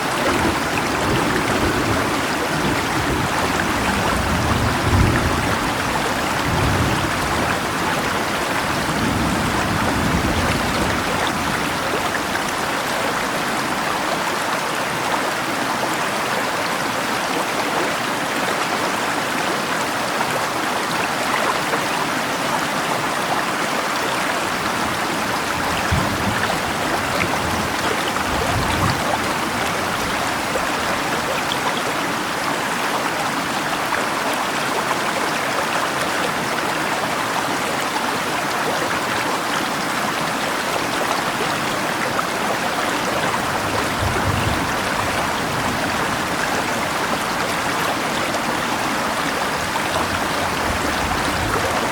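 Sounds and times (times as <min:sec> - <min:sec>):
rain falling: 0:00.0 - 0:51.9
river water rushing: 0:00.0 - 0:51.9
low thunder rumbles: 0:00.1 - 0:12.4, 0:25.3 - 0:31.3, 0:43.1 - 0:51.9.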